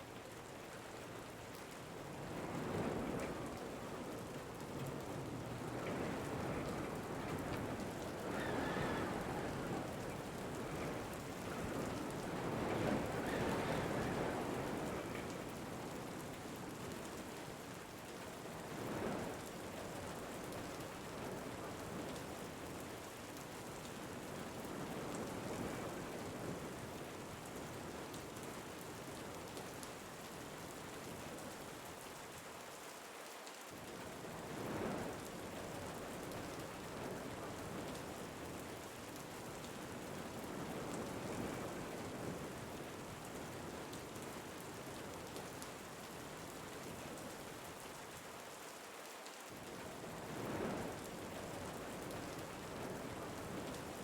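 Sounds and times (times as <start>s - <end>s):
steady rain falling: 0.0s - 54.0s
wind gusting: 5.6s - 16.1s.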